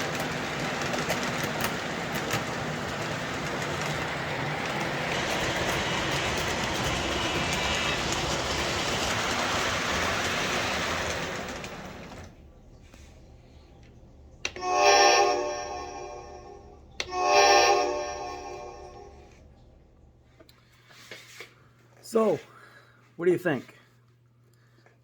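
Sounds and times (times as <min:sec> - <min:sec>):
model train running on track: 0:00.0 - 0:12.4
train horn blasts: 0:14.6 - 0:19.3.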